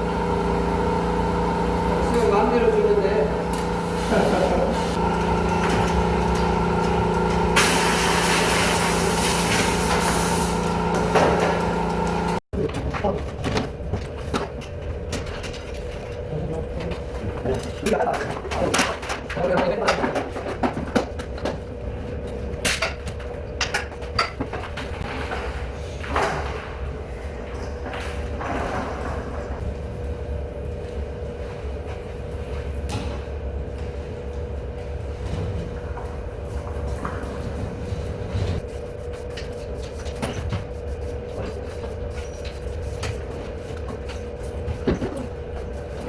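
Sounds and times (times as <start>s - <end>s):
machine humming: 0.0s - 12.4s
low background hum: 0.0s - 46.0s.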